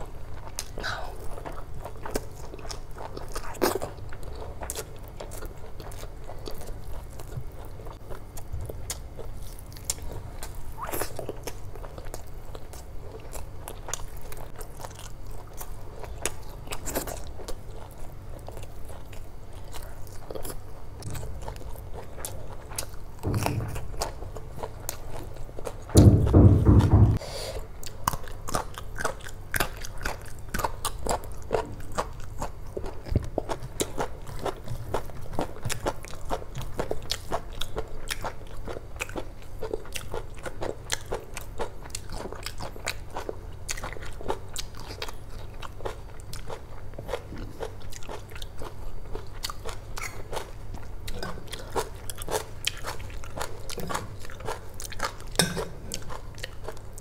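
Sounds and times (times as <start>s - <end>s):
chewing with wet mouth clicks: 27.8s - 57.0s.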